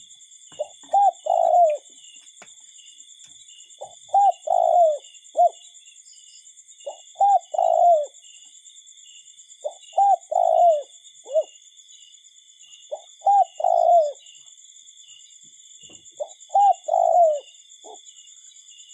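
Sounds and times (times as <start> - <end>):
bird calling low phrase: 0.6 - 1.8.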